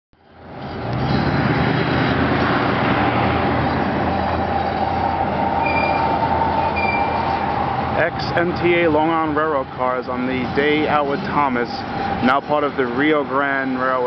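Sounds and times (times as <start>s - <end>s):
diesel locomotive running: 0.2s - 14.0s
thin steady squeal: 5.6s - 7.4s.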